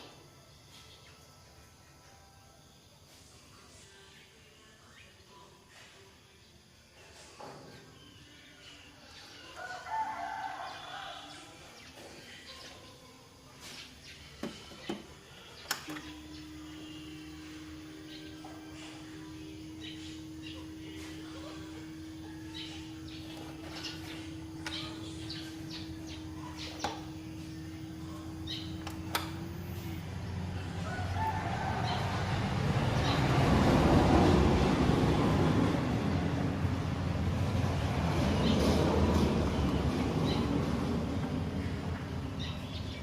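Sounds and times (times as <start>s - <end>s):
birds chirping: 10.8s - 32.2s, 38.2s - 43.0s
steady low hum: 12.5s - 43.0s
constant tone: 15.6s - 33.2s.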